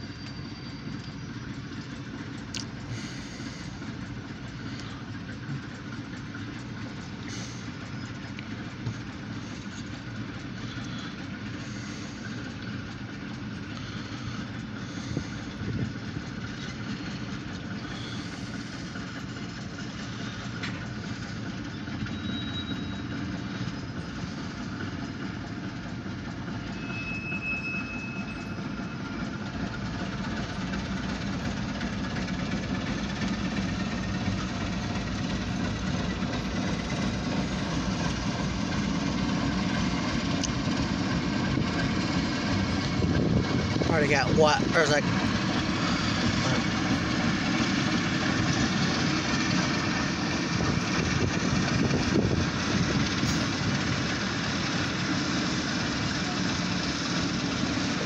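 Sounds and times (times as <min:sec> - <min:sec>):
faint wheel squeals: 0:00.0 - 0:42.9
train wheels rumbling on rails: 0:00.0 - 0:58.0.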